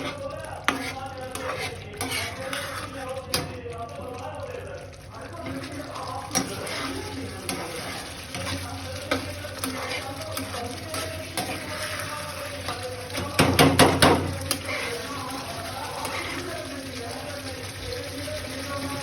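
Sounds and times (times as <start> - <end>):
kitchen utensils clinking: 5.5 - 17.3.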